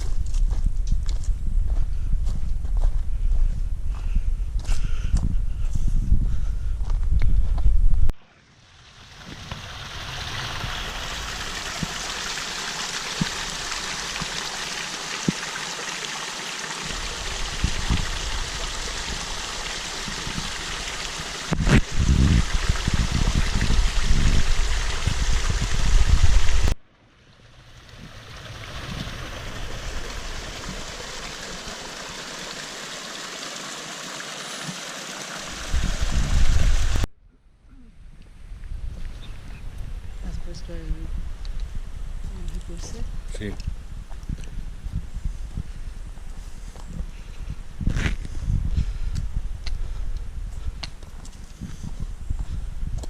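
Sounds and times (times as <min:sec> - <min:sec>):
stream flowing: 0:08.2 - 0:37.0.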